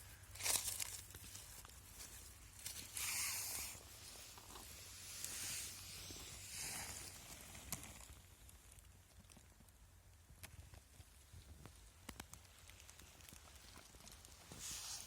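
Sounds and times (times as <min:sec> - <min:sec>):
rustling in dry leaves: 0:00.0 - 0:08.8, 0:12.4 - 0:15.0
small clicks and snaps: 0:07.6 - 0:14.6.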